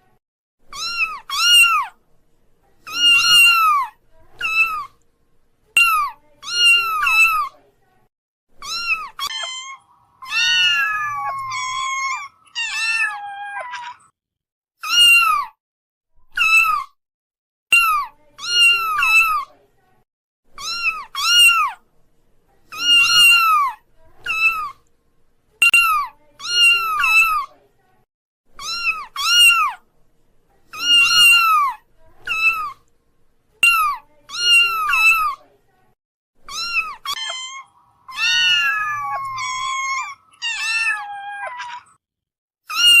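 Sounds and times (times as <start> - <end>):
kittens meowing: 0.7 - 2.0, 2.9 - 4.9, 8.6 - 14.1, 20.6 - 21.8, 22.8 - 24.7, 28.6 - 29.8, 30.8 - 32.8, 33.6 - 35.4, 36.5 - 42.0, 42.7 - 43.0.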